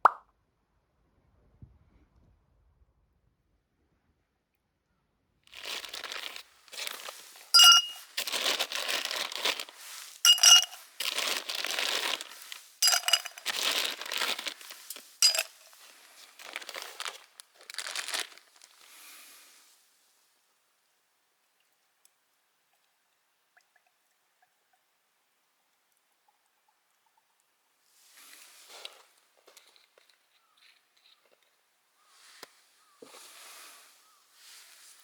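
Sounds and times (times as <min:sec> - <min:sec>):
hard items clinking: 0:05.5 - 0:18.8
plastic packaging crinkling: 0:05.5 - 0:19.1.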